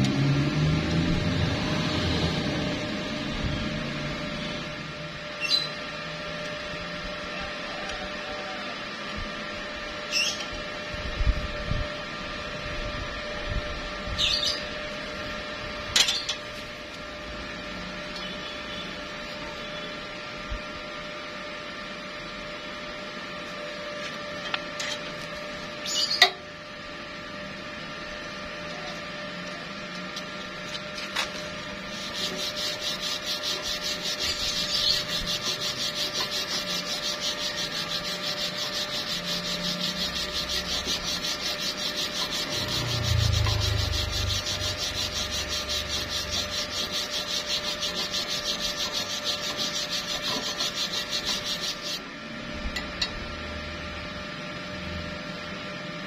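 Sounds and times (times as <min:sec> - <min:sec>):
low steady hum: 0:29.4 - 0:53.3
welding arc crackling and hissing: 0:31.2 - 0:52.0.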